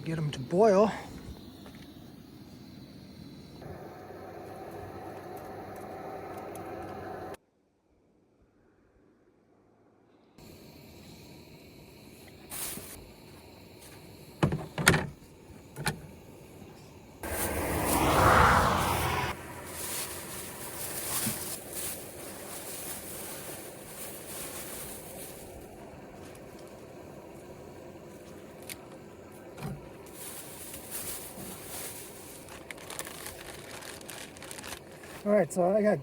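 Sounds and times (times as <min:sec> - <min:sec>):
highway traffic rushing: 0:03.5 - 0:07.4, 0:17.2 - 0:25.0.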